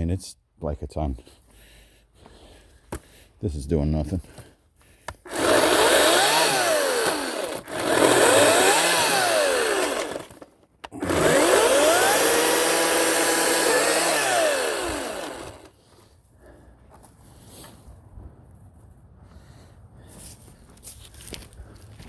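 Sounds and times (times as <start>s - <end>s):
electric chainsaw motor whine: 5.3s - 15.8s.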